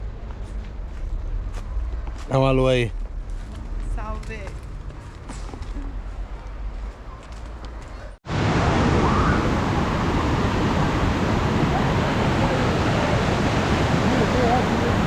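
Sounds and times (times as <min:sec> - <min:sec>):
outdoor background noise: 0:00.0 - 0:15.0
waterfall rushing and splashing: 0:08.3 - 0:15.0.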